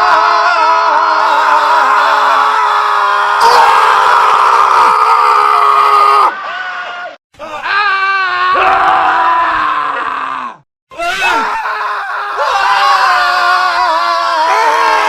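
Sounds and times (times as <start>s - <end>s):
men screaming: 0.0s - 15.0s.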